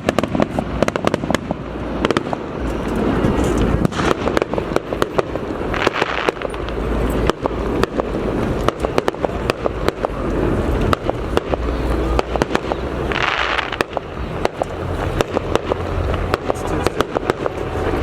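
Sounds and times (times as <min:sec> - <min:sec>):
fireworks banging and crackling: 0:00.0 - 0:18.0
hissing burst: 0:00.0 - 0:18.0
low rumble: 0:00.0 - 0:18.0.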